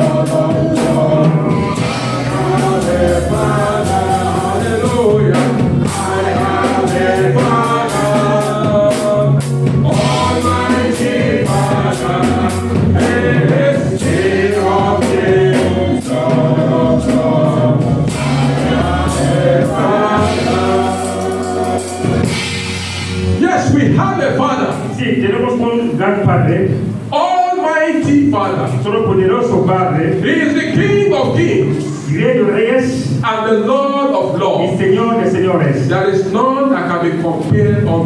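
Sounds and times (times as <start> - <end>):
band with percussive beat: 0.0 - 24.0
group singing gospel song: 0.0 - 24.4.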